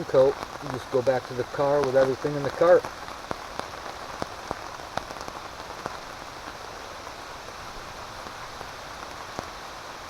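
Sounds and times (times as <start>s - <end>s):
heavy drops ticking: 0.0s - 2.9s
steady rain falling: 0.0s - 10.0s.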